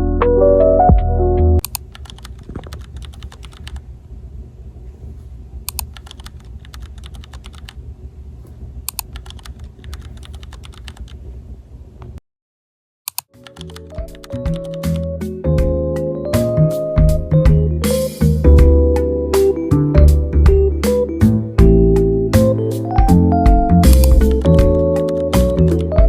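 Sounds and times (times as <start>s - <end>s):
low steady hum: 1.6s - 12.2s
background music: 13.4s - 26.0s.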